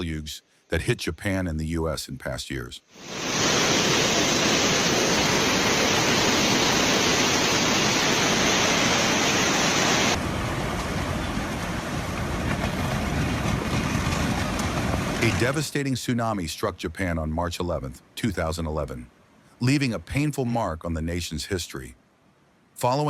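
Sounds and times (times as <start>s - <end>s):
floodwater rushing: 3.0s - 15.9s.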